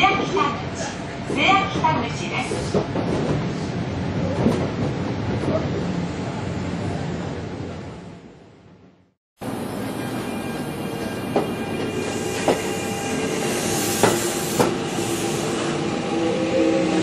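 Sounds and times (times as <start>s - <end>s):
train whine: 9.4s - 17.0s.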